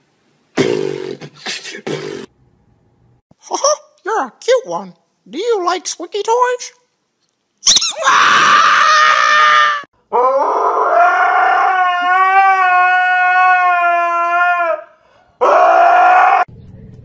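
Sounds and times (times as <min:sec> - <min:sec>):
husky howling: 0:08.0 - 0:16.5.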